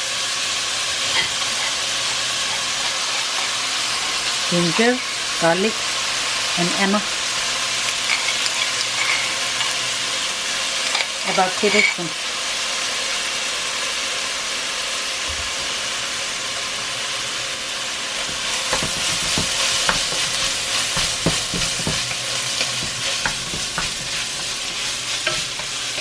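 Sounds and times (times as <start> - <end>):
onion sizzling in hot oil: 0.0 - 26.0
utensil scraping a pan: 1.0 - 4.2, 8.0 - 9.8, 10.8 - 12.1, 18.2 - 26.0.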